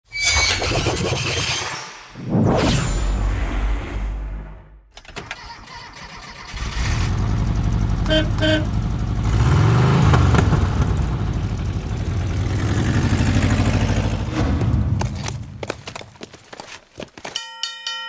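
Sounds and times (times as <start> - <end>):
van engine starting and revving: 5.4 - 15.5.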